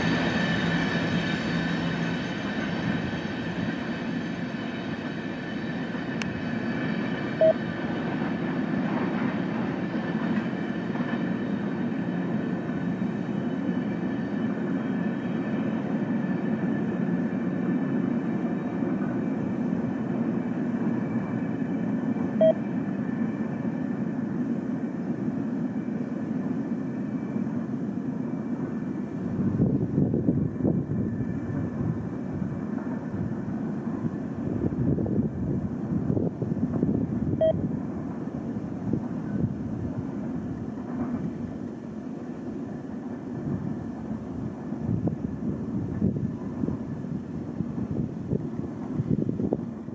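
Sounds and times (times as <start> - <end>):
diesel locomotive rumble: 0.0 - 49.9
short beeps: 7.4 - 7.6, 22.4 - 22.6, 37.4 - 37.6.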